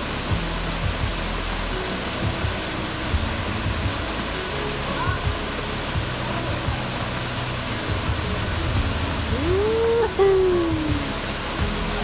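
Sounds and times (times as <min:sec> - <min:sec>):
waterfall roaring: 0:00.0 - 0:12.0
rising and falling call: 0:09.3 - 0:11.3.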